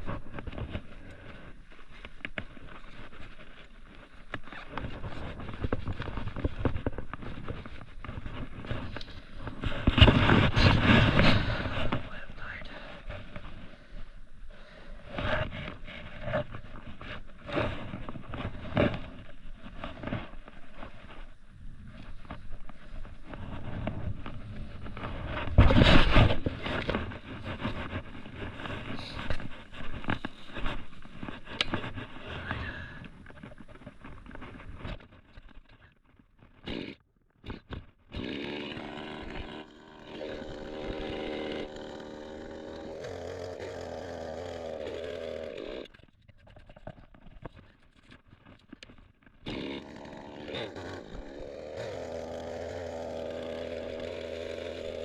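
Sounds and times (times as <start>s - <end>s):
crackling and rustling: 0.0s - 14.1s, 15.0s - 38.0s
chainsaw engine running: 36.7s - 37.0s, 38.1s - 45.9s, 49.5s - 55.0s.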